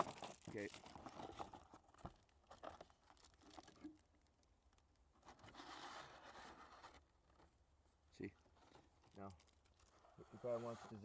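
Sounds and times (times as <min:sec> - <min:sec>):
plastic wrappers crinkling: 0:00.0 - 0:04.2, 0:09.0 - 0:10.0.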